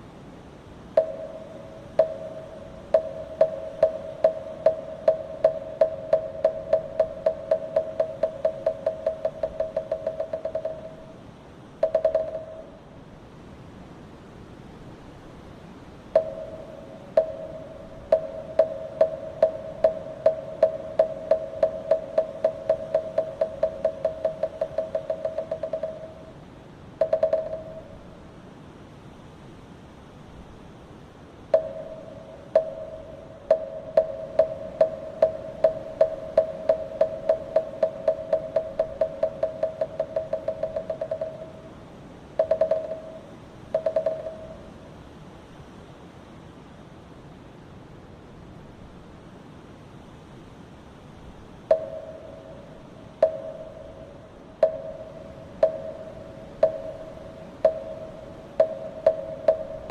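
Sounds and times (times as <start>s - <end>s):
wooden temple block knocking: 1.0s - 11.2s, 11.8s - 12.8s, 16.2s - 26.3s, 27.0s - 27.9s, 31.6s - 41.7s, 42.4s - 44.6s, 51.7s - 59.9s.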